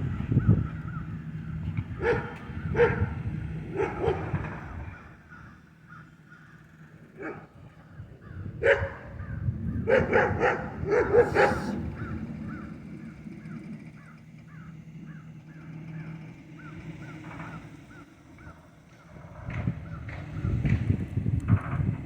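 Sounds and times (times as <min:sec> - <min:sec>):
dog barking: 0:02.0 - 0:03.1, 0:03.7 - 0:04.3, 0:07.2 - 0:07.5, 0:08.6 - 0:09.1, 0:09.8 - 0:11.8.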